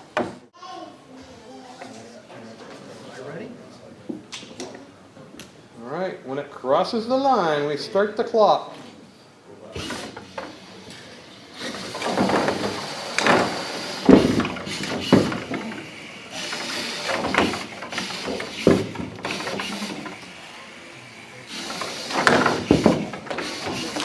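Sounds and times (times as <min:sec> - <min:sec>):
robot drive hissing: 0:11.5 - 0:20.6, 0:21.3 - 0:24.0
objects knocking and clattering: 0:11.9 - 0:20.2, 0:21.6 - 0:24.0.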